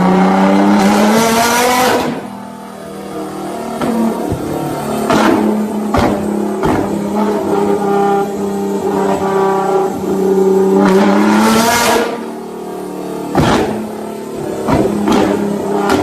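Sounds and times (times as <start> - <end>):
car engine droning at high revs: 0.0 - 16.0
exhaust pops: 3.8 - 7.8, 13.3 - 16.0.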